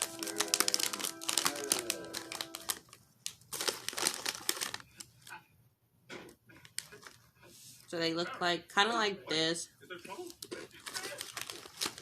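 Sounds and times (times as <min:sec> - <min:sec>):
plastic snack bag crinkling: 0:00.0 - 0:05.4, 0:06.5 - 0:07.3, 0:10.1 - 0:12.0.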